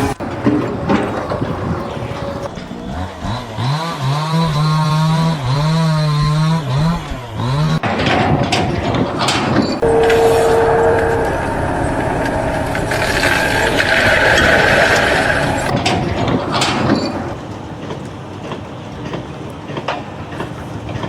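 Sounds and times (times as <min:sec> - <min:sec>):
machinery clanking and grinding: 0:00.0 - 0:21.0
brief steady tone: 0:09.8 - 0:15.7.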